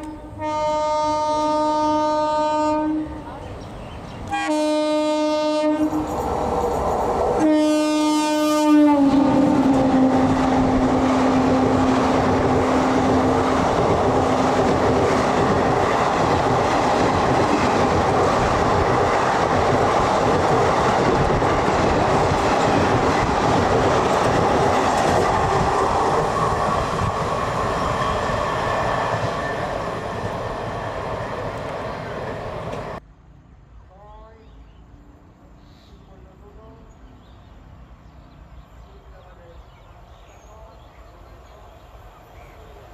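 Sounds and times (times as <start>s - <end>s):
locomotive horn: 0.0s - 3.3s, 4.3s - 6.1s, 7.4s - 10.8s
train coaches clattering on rails: 9.1s - 33.0s.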